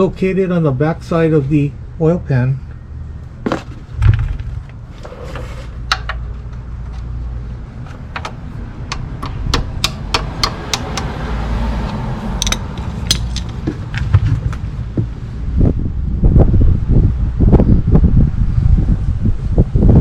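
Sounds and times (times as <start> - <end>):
low steady rumble: 0.0 - 20.0
ratchet clicking: 12.4 - 13.6.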